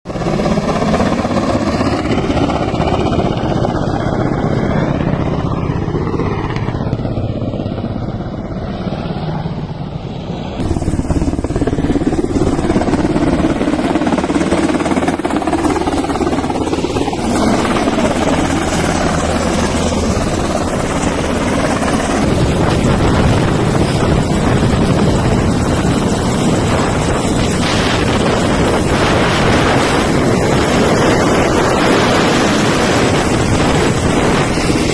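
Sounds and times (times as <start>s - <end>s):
helicopter rotor and engine: 0.0s - 34.9s.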